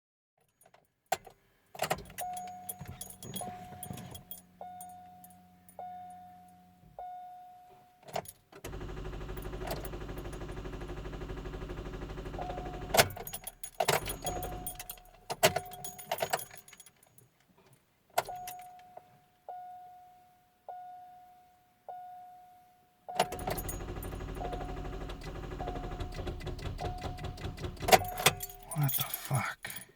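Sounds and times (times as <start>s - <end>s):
keys rattling in ignition: 0.5s - 5.4s, 8.1s - 17.4s, 23.2s - 29.9s
car warning chime dinging: 12.4s - 16.0s, 23.2s - 28.8s.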